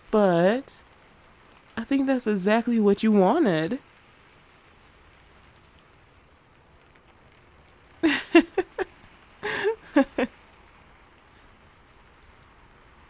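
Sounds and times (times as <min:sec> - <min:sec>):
steady rain: 0:00.0 - 0:13.0
woman's wordless vocal sounds: 0:08.0 - 0:10.3.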